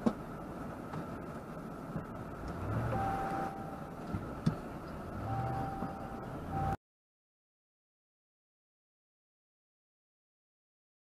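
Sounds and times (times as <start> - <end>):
low rumble in car cabin: 0.0 - 6.8
electronic tone: 2.9 - 3.8, 5.2 - 6.8.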